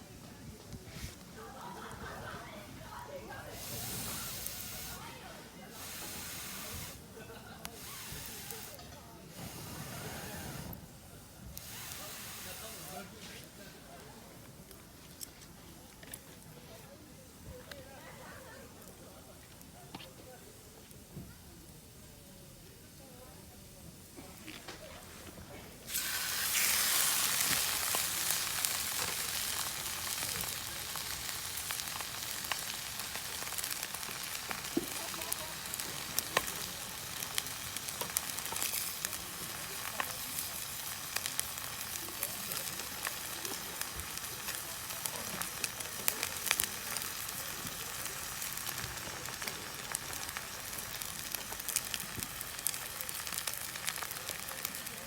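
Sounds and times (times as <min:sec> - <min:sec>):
steak sizzling in a pan: 0:01.5 - 0:08.8, 0:11.5 - 0:13.1, 0:25.8 - 0:55.0.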